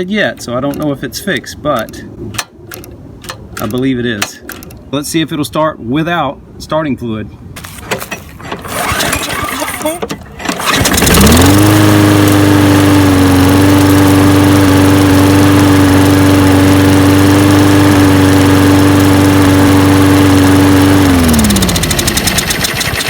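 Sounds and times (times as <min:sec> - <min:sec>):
lawn mower engine running: 0:07.6 - 0:23.0.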